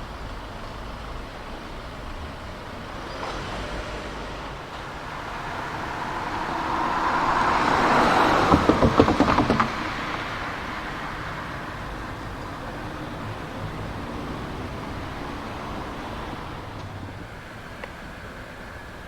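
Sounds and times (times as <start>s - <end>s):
vehicle passing: 3.2s - 19.0s
rapid clacks: 6.8s - 13.1s.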